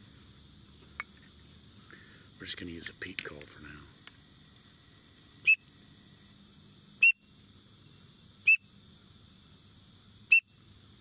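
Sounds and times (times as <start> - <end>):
insects droning: 0.0 - 11.0
duck whistle peeps: 7.0 - 7.2, 10.3 - 10.5.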